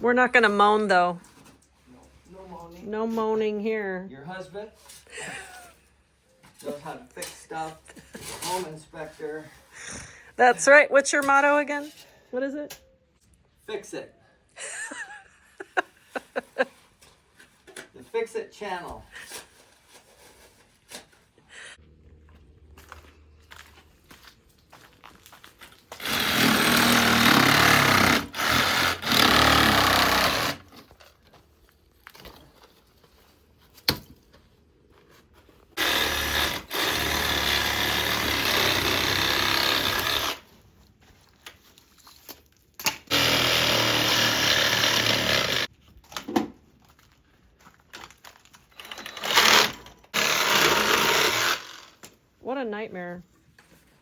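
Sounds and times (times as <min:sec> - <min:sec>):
power tool running: 0:25.9 - 0:30.7, 0:35.8 - 0:40.4, 0:43.1 - 0:45.7, 0:48.8 - 0:52.0.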